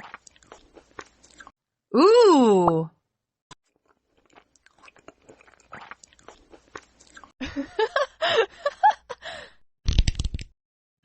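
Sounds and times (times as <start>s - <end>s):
crunchy food being chewed: 0.0s - 1.5s, 3.7s - 7.4s.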